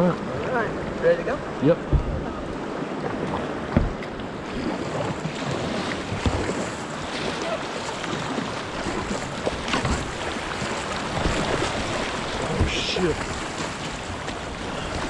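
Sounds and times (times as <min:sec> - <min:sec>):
rushing whitewater: 0:00.0 - 0:15.0
wind on microphone: 0:01.7 - 0:07.6
low thumps: 0:01.8 - 0:02.6, 0:03.6 - 0:04.2.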